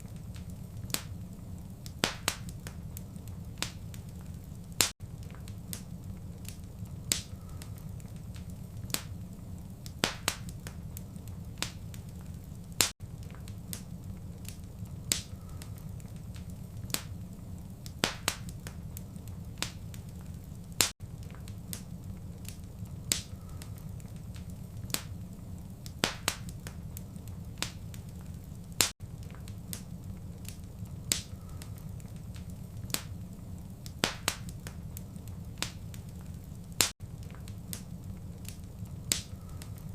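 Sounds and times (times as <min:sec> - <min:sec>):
low rumble of flames: 0:00.0 - 0:39.9
wood fire pops and snaps: 0:00.0 - 0:39.9.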